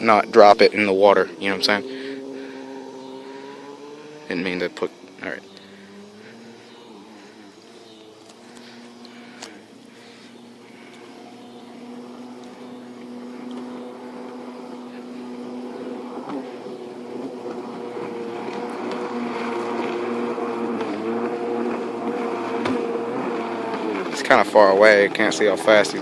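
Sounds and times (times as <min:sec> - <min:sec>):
jet ski engine: 0:00.0 - 0:26.0.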